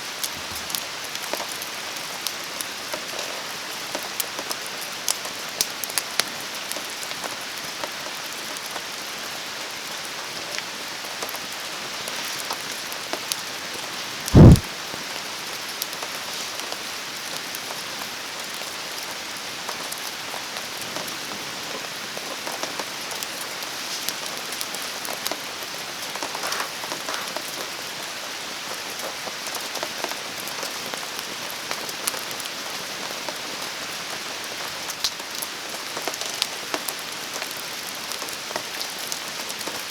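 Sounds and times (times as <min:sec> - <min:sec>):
deep thump: 0:14.4 - 0:14.6
steady rain: 0:16.2 - 0:39.9.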